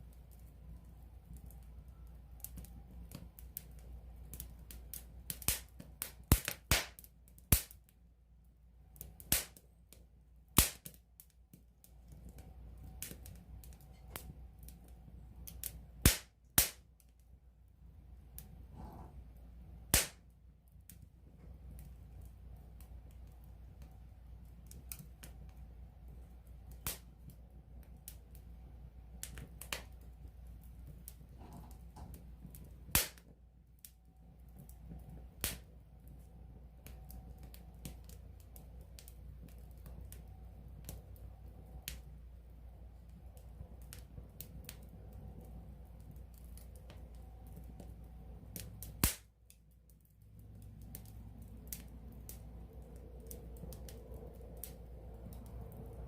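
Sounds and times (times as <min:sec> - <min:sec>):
campfire crackling: 0:00.0 - 0:56.0
low rumble: 0:50.6 - 0:56.0.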